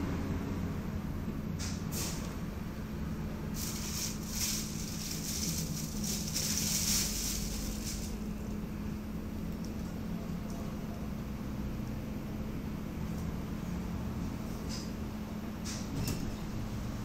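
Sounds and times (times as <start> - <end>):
trolleybus traction hum: 0.0 - 17.0
rushing hiss: 3.6 - 8.3.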